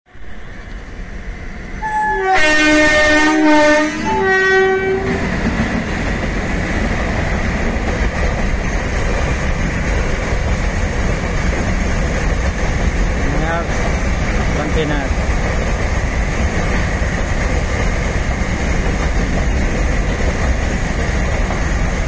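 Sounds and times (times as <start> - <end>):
locomotive multi-tone horn: 1.8 - 5.2.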